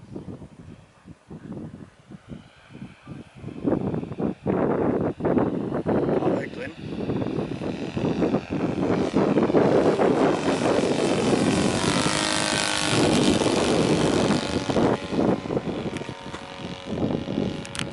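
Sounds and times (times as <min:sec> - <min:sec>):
model plane engine and propeller: 0:00.0 - 0:17.9.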